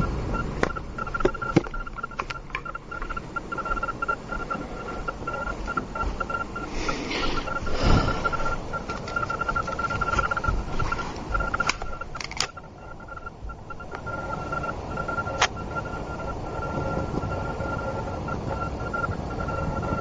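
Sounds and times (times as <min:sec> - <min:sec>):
thin high whine: 0:00.0 - 0:20.0
sharp clicks: 0:00.4 - 0:20.0
furnace air rushing: 0:06.6 - 0:08.8.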